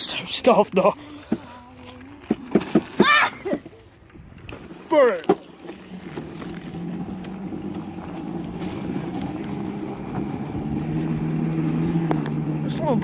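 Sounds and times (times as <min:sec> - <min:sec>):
wind noise on microphone: 0:04.0 - 0:04.8
electric motor humming: 0:05.7 - 0:13.0.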